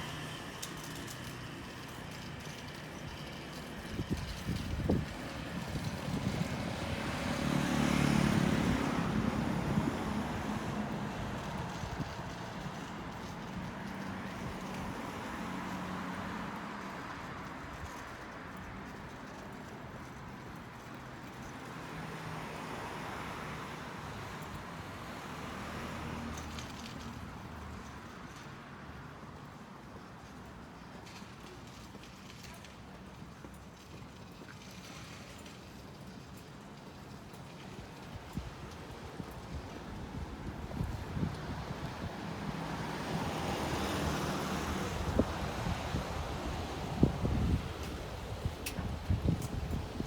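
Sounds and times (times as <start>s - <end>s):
vehicle passing: 5.8s - 11.4s, 39.9s - 50.0s.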